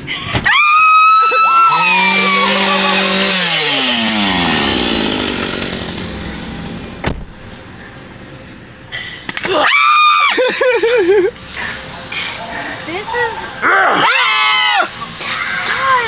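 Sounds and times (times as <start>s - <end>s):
woman screaming: 0.5s - 3.6s, 9.5s - 10.7s, 13.0s - 16.0s
chainsaw engine revving: 0.9s - 7.0s.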